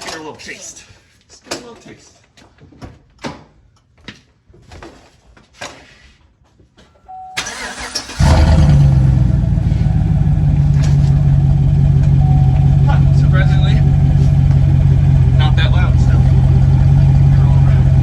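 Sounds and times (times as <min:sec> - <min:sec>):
short beep: 0:07.0 - 0:07.5, 0:12.1 - 0:13.1
truck engine cranking and idling: 0:07.4 - 0:18.0.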